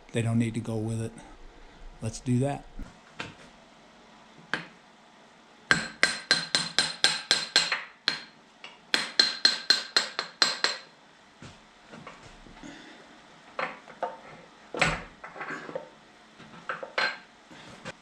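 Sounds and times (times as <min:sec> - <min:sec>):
hammer striking steel: 0:05.7 - 0:08.3, 0:09.0 - 0:10.9.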